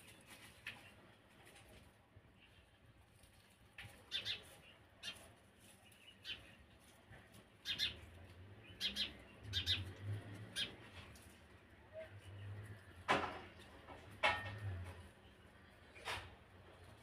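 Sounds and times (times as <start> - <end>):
birds chirping: 3.8 - 13.9.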